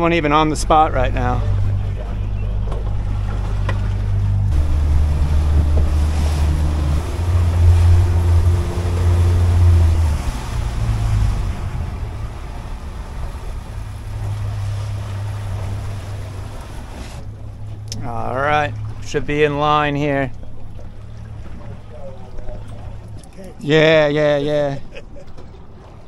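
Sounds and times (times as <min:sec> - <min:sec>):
outboard engine running: 0:00.0 - 0:26.0
water rushing past hull: 0:00.0 - 0:26.0
wind on microphone: 0:01.5 - 0:17.2.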